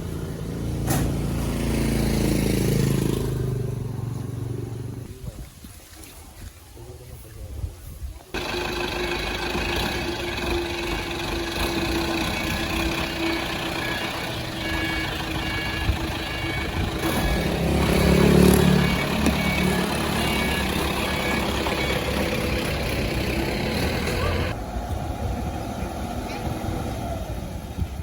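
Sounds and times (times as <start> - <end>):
engine running: 8.3 - 28.0.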